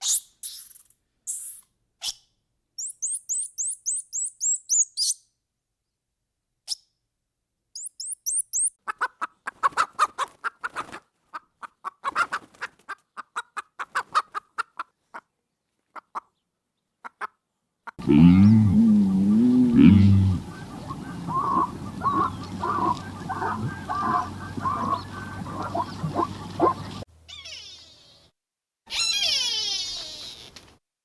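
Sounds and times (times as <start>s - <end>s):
low rattling bird notes: 18.0s - 27.0s
high sweeping bird chirps: 19.4s - 27.6s.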